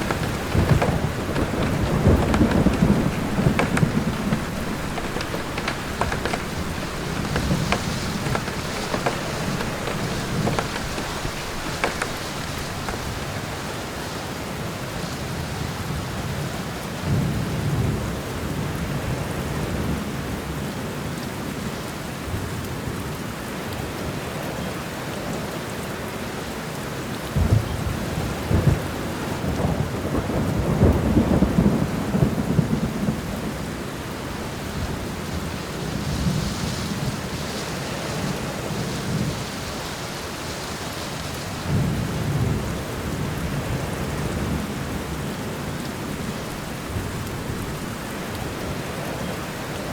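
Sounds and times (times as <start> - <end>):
thunder rumbling: 0.0 - 13.9
steady rain: 0.0 - 49.9.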